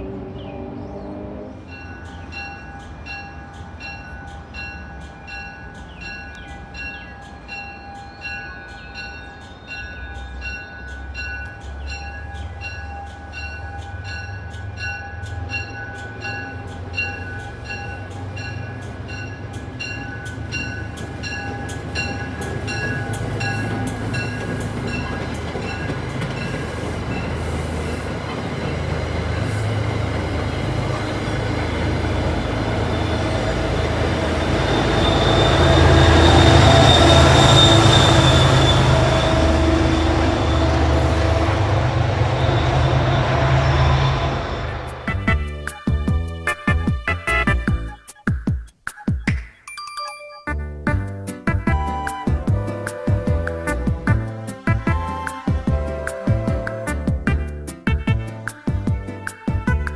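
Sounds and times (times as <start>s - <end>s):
passing train rumble: 0.0s - 47.9s, 51.5s - 59.9s
crossing bell dinging: 1.6s - 46.4s.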